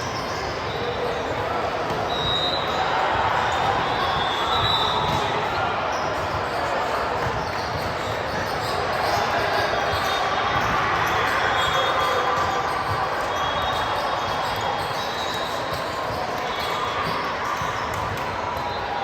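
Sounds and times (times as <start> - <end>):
balls bouncing and struck on court: 0.4 - 18.9.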